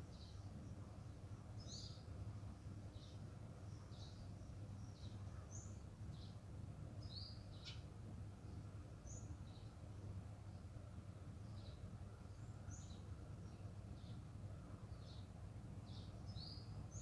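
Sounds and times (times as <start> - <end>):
small bird chirping: 0.0 - 2.1, 2.9 - 6.4, 7.0 - 9.8, 14.9 - 17.0
low steady hum: 0.0 - 17.0.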